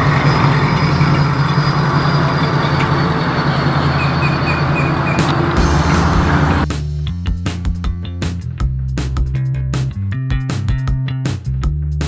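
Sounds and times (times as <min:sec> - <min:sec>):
vehicle engine running: 0:00.0 - 0:06.7.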